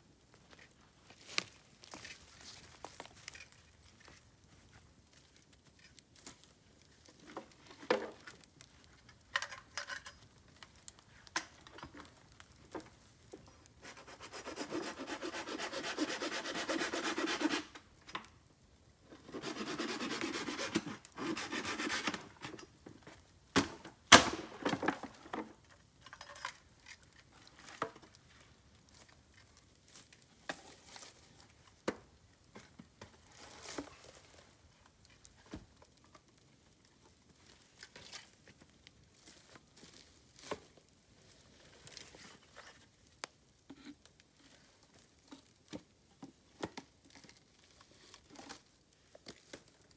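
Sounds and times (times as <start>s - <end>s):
small clicks and crackles: 0.3s - 13.9s, 24.8s - 49.9s
woody rubbing and scraping: 13.8s - 17.8s, 19.2s - 22.4s.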